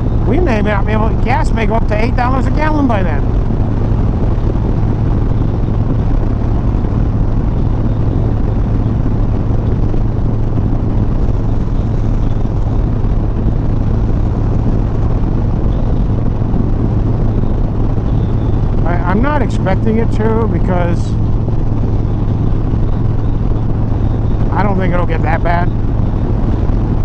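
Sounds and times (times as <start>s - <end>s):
motorcycle engine humming: 0.0s - 27.0s
road and wind noise: 0.0s - 27.0s.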